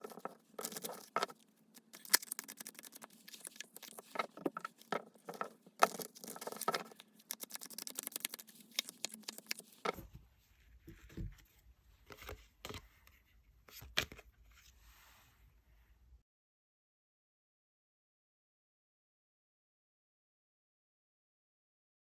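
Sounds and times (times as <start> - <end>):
cards being shuffled: 0.0 - 10.0.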